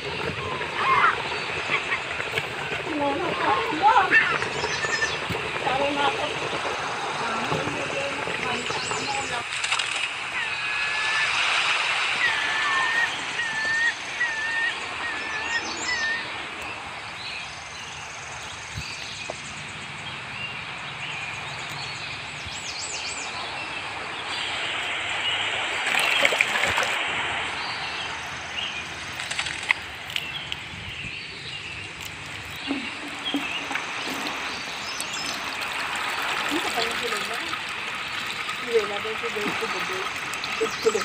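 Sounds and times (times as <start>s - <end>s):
steady outdoor hiss: 0.0s - 41.0s
high bird chirps: 3.0s - 6.2s, 8.4s - 19.8s.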